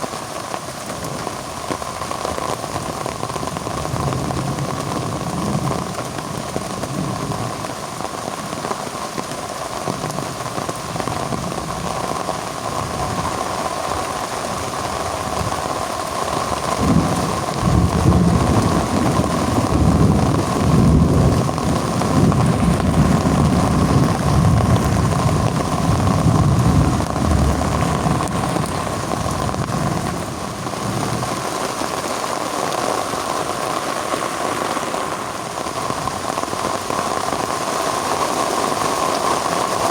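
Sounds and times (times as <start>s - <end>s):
heavy rain falling: 0.0s - 39.9s
low rumble of thunder: 16.5s - 31.4s.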